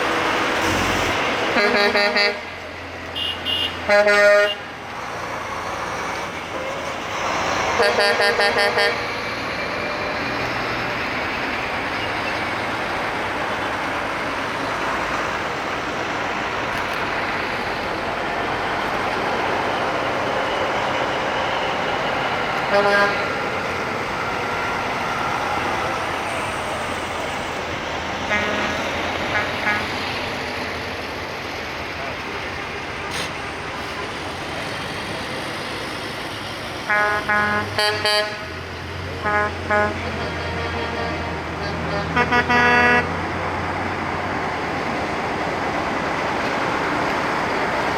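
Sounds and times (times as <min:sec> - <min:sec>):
trucks driving past: 0:00.0 - 0:47.9
truck horn blast: 0:00.6 - 0:02.6, 0:03.2 - 0:04.7, 0:07.7 - 0:09.1, 0:22.6 - 0:23.4, 0:28.2 - 0:30.0, 0:36.9 - 0:43.3.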